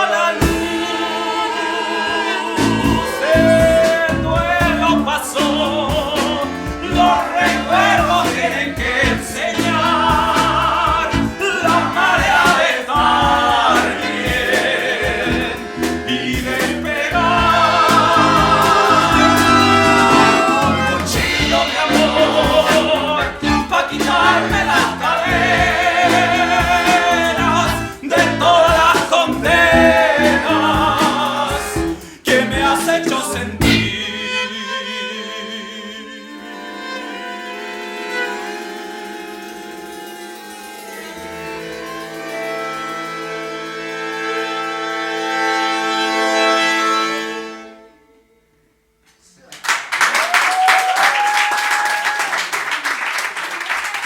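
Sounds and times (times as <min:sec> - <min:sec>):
live band playing: 0:00.0 - 0:34.4, 0:37.2 - 0:47.8
person singing with backing voices: 0:00.0 - 0:36.7.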